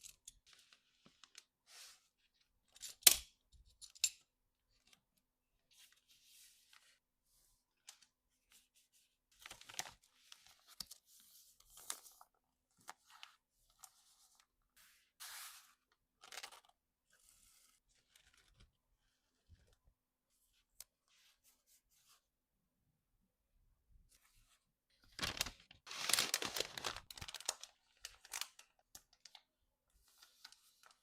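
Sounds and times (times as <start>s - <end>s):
packaging tearing and crinkling: 25.2s - 27.7s.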